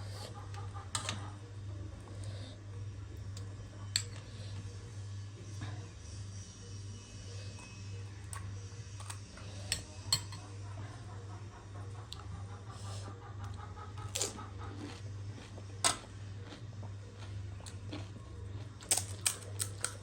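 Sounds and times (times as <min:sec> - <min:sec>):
steady low hum: 0:00.0 - 0:20.0
cutlery clinking: 0:09.0 - 0:10.4
person chewing: 0:13.4 - 0:20.0.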